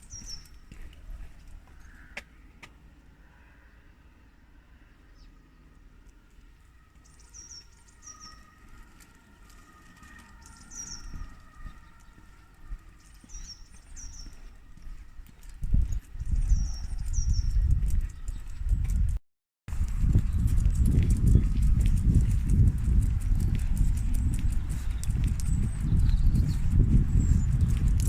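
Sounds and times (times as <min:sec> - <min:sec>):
small bird chirping: 0:00.0 - 0:00.9, 0:07.0 - 0:08.6, 0:10.1 - 0:19.0, 0:22.8 - 0:28.0
faint low rumble: 0:00.0 - 0:28.0.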